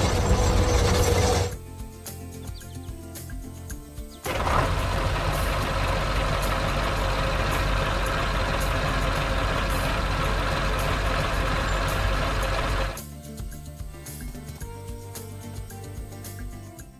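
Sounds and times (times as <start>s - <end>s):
heavy vehicle engine rumbling: 0.0s - 1.6s, 4.3s - 13.0s.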